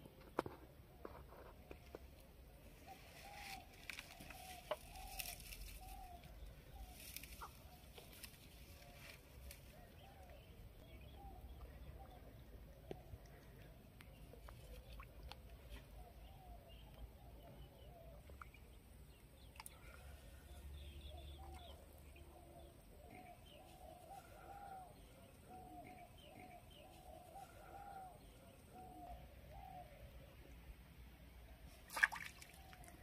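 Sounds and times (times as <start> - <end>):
birds calling: 2.8 - 30.4.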